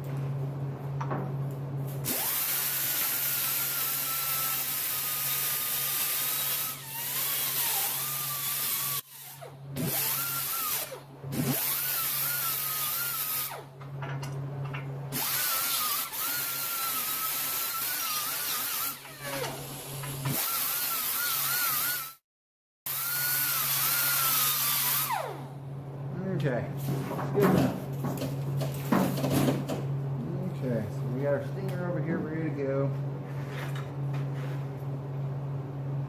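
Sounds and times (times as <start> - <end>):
power grinder whining: 2.1 - 13.7, 15.2 - 22.2, 22.9 - 25.5.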